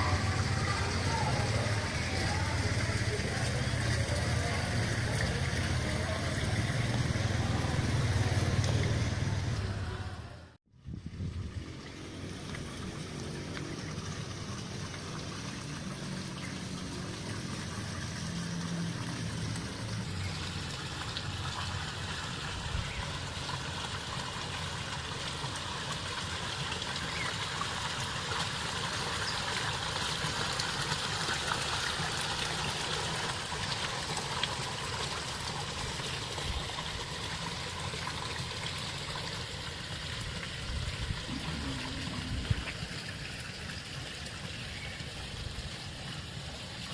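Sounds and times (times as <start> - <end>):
waterfall rushing into pond: 0.0 - 10.2, 11.1 - 46.9.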